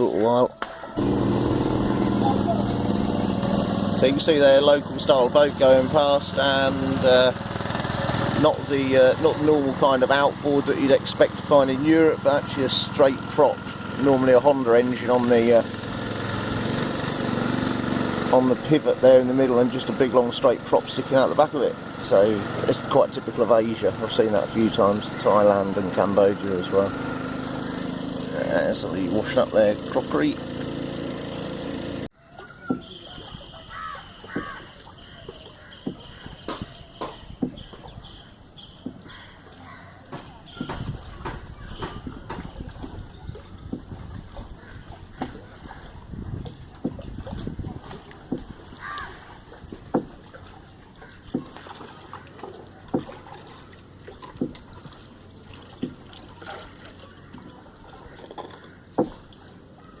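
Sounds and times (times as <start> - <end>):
paddle splashing in water: 0.6 - 60.0
crow cawing: 33.6 - 36.7, 39.0 - 40.0, 48.8 - 49.2, 58.0 - 58.9
water trickling: 42.0 - 60.0.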